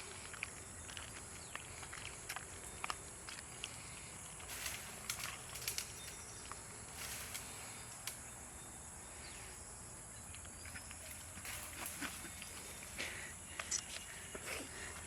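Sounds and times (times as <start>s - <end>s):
steady background hiss: 3.1s - 15.0s.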